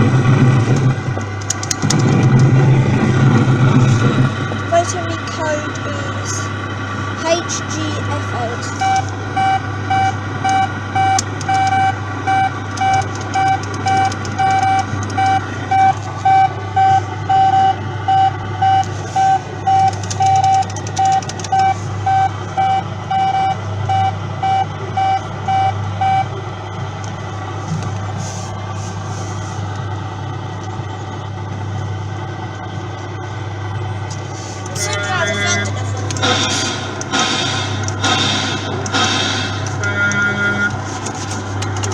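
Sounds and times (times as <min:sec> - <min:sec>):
low engine-like hum: 0:00.0 - 0:41.9
reversing alarm beeps: 0:08.7 - 0:26.3, 0:34.8 - 0:40.8.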